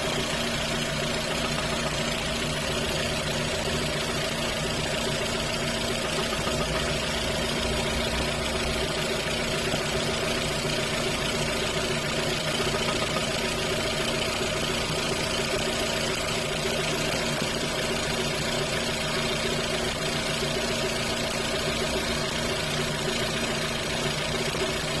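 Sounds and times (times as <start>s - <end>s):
car engine idling with knock: 0.0s - 25.0s.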